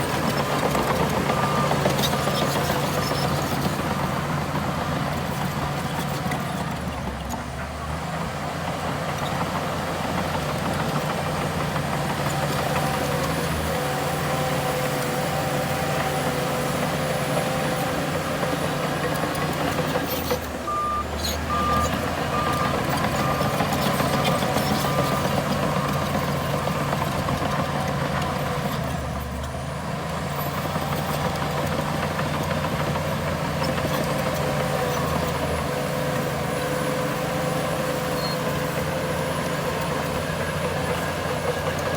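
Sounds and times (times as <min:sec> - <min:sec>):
diesel earthmoving machinery running: 0:00.0 - 0:41.9
reversing alarm beeping: 0:20.7 - 0:23.8.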